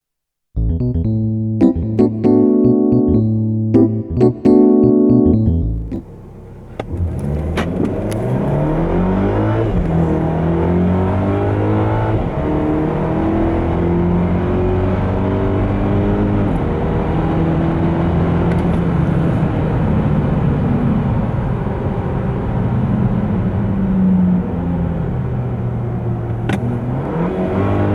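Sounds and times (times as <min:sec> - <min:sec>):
car engine accelerating hard: 0:05.7 - 0:27.9.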